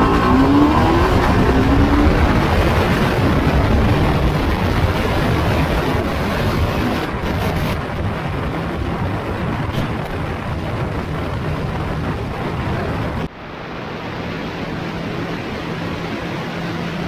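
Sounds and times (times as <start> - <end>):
motorcycle engine at speed: 0.0 - 13.3
wind rushing over microphone: 0.0 - 17.0.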